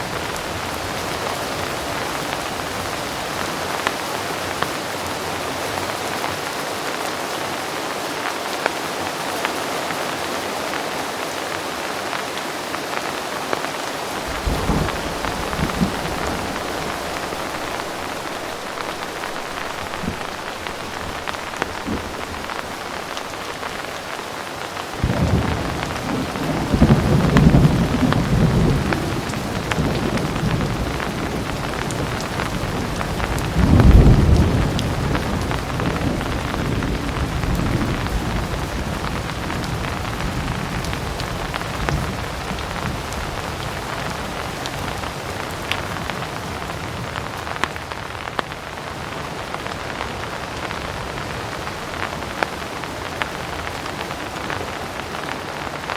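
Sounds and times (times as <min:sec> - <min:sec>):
heavy rain: 0:00.0 - 0:55.9
thunder rolling: 0:14.0 - 0:24.4, 0:25.0 - 0:44.2.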